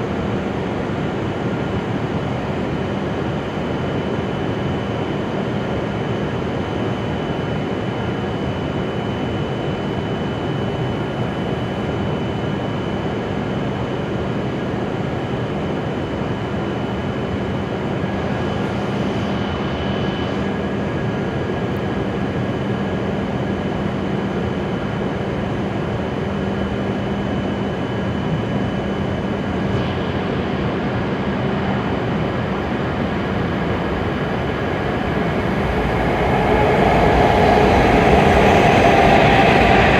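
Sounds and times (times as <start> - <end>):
train humming and rumbling: 17.4 - 39.9
constant whining tones: 32.2 - 39.9.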